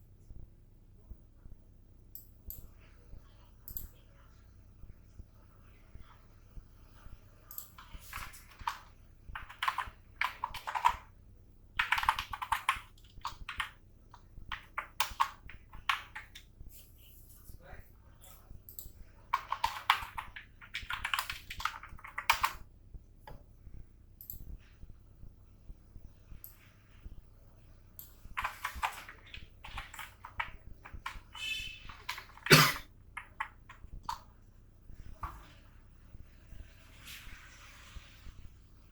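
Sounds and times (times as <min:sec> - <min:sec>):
typing on computer keyboard: 0:07.5 - 0:11.2, 0:11.8 - 0:16.5, 0:18.7 - 0:22.6, 0:28.0 - 0:34.3.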